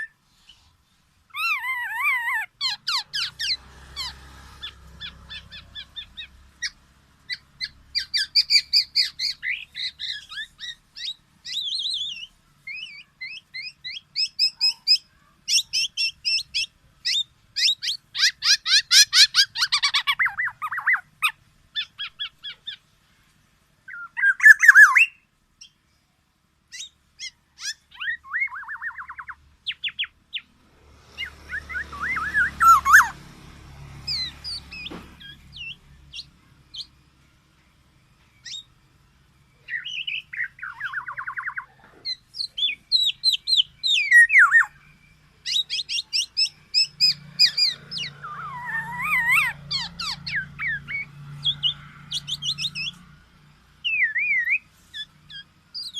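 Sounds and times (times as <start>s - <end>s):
bird chirping and trilling: 0.0s - 23.2s, 23.8s - 26.0s, 26.6s - 55.9s.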